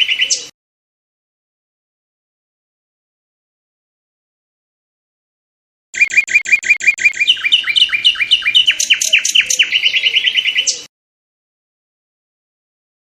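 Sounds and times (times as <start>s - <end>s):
songbird singing: 0.0s - 0.5s, 6.0s - 10.9s.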